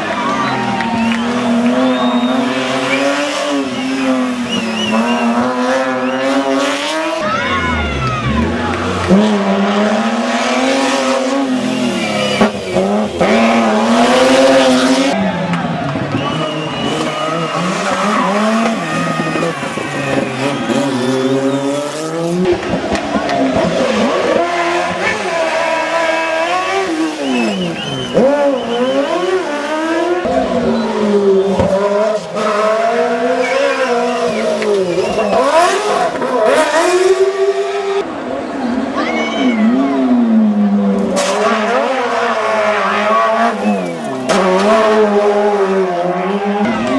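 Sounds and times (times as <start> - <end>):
race car engine accelerating: 0.0 - 38.9, 39.6 - 46.9.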